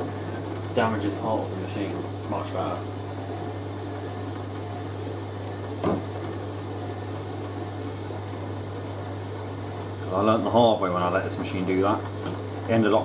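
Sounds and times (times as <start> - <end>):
washing machine spinning: 0.0 - 13.0
short knock: 5.8 - 6.1.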